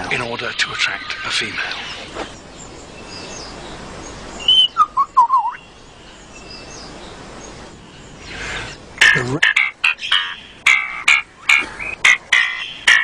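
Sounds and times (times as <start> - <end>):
faint forest background hiss: 0.0 - 13.0
lyrebird whistled song: 1.0 - 8.8.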